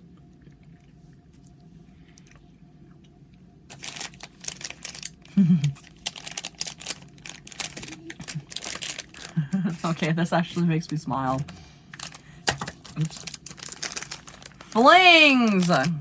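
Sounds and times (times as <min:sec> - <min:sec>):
faint room hum: 0:00.0 - 0:16.0
plastic packaging crinkling: 0:03.7 - 0:16.0.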